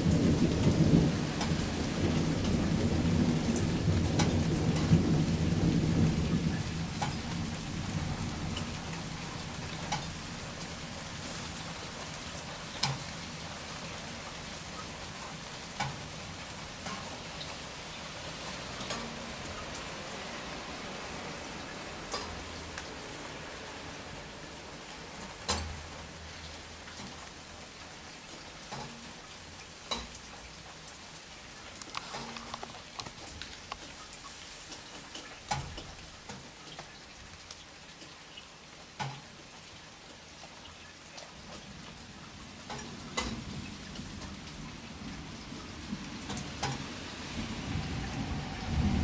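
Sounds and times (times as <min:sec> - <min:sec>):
distant thunder rumble: 0:00.0 - 0:11.9, 0:43.2 - 0:49.0
heavy raindrops tapping: 0:00.0 - 0:49.0
steady rain falling: 0:00.0 - 0:49.0.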